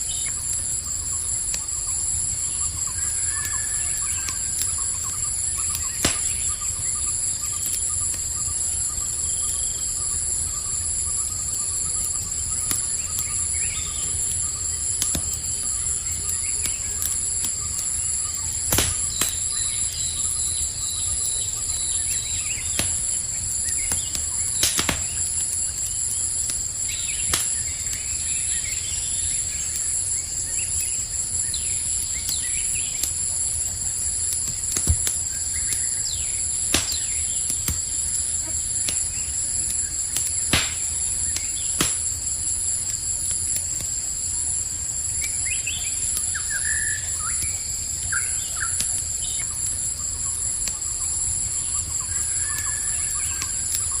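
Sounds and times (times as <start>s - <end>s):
campfire crackling and popping: 0.0s - 54.0s
crickets chirping: 0.0s - 54.0s
faint bird chirps: 1.6s - 10.9s.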